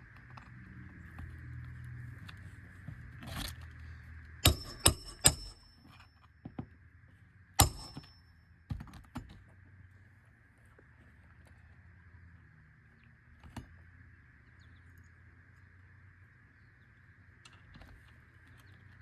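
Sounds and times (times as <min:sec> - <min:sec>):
hammer striking metal: 0:04.4 - 0:05.8, 0:07.6 - 0:08.2.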